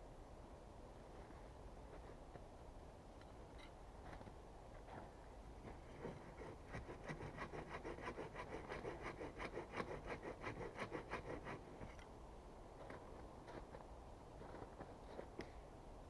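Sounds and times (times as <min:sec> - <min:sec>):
hand tool scraping wood: 0:05.7 - 0:12.0.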